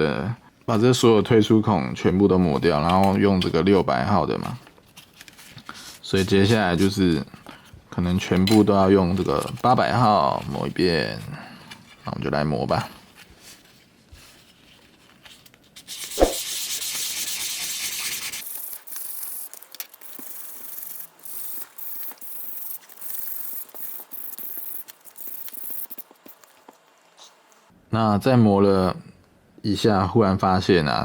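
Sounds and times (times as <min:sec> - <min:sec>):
sandpaper rubbing on plastic: 0:15.8 - 0:19.3.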